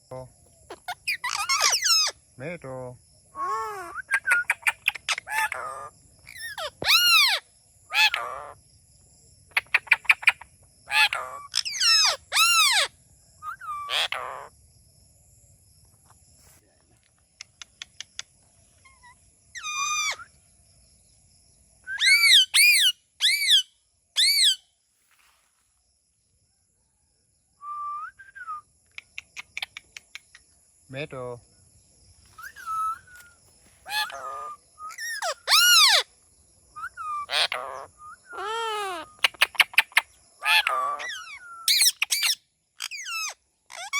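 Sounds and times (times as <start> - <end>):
parrot squawking: 0.7 - 2.1, 3.4 - 8.6, 10.9 - 12.9, 13.5 - 14.5, 19.6 - 20.2, 22.0 - 24.6, 32.4 - 33.2, 33.8 - 36.0, 36.8 - 39.8, 40.4 - 43.9.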